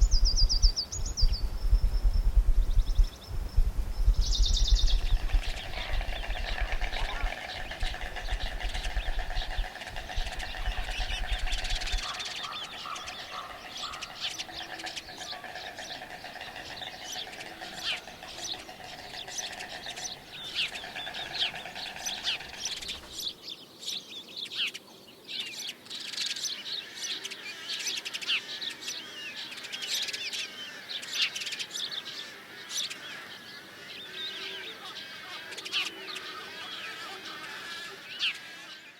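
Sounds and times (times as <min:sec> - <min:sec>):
small birds chirping: 0:00.0 - 0:38.9
steady buzzing trill: 0:03.3 - 0:23.2.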